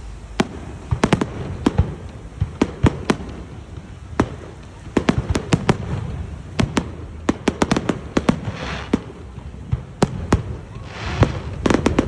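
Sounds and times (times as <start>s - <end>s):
firework hissing crackle: 0.0s - 12.0s
fireworks bangs: 0.0s - 12.0s.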